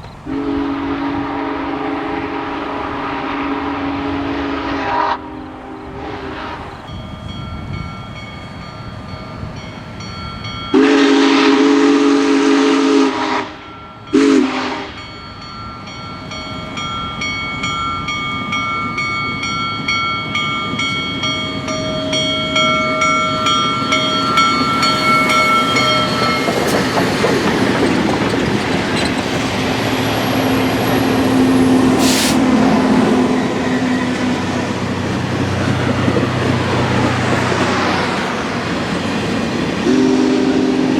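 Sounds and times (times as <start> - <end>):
train running noise: 0.0 - 40.9
steam whistle blowing: 0.3 - 6.8, 10.8 - 15.0, 30.4 - 33.9, 39.8 - 40.9.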